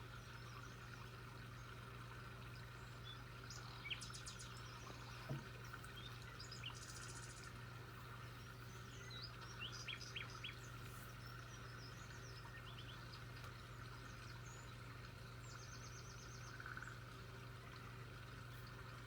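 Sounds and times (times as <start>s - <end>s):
birds chirping: 2.4s - 17.0s.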